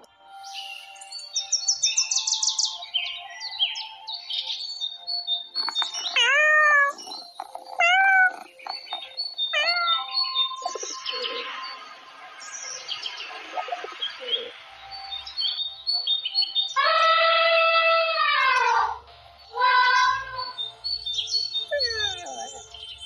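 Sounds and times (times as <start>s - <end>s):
birds chirping: 0.0s - 23.0s
cat meowing: 6.0s - 10.9s, 21.7s - 22.6s.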